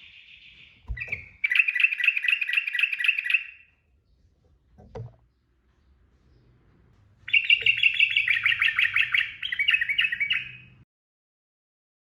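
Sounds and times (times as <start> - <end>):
bulbul singing rolling notes: 5.2 - 10.8.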